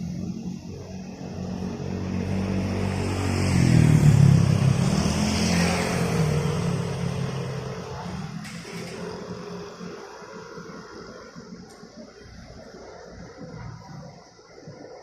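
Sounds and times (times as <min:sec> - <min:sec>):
vehicle engine passing by: 0:00.0 - 0:11.6.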